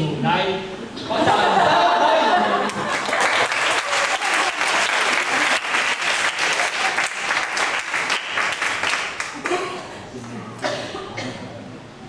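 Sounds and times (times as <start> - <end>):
audience applauding: 2.5 - 9.8.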